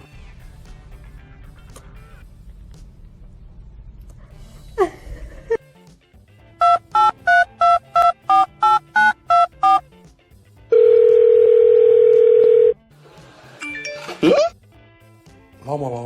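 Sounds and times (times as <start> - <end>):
steady dial tone: 6.6 - 9.8, 10.7 - 12.7
telephone keypad touch-tones: 6.6 - 9.8, 10.8 - 12.7.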